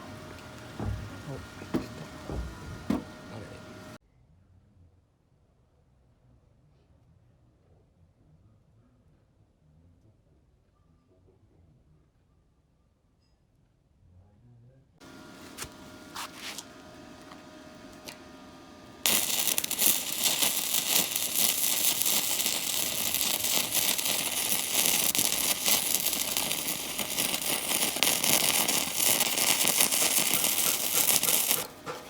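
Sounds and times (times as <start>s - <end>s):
welder humming: 0.0s - 4.0s, 15.0s - 32.0s
welding arc crackling: 0.0s - 4.0s, 15.0s - 32.0s.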